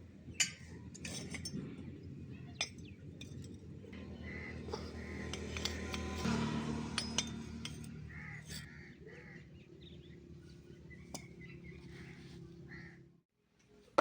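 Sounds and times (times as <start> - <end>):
low machine hum: 1.6 - 13.2
sharp metallic clinks: 2.6 - 8.7.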